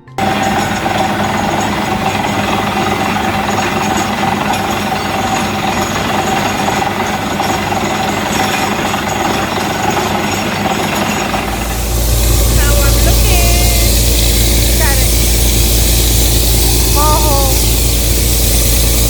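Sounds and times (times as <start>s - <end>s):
compressor engine running: 0.0s - 19.0s
drilling rig running: 0.0s - 19.0s
hiss of air and water: 0.2s - 19.0s.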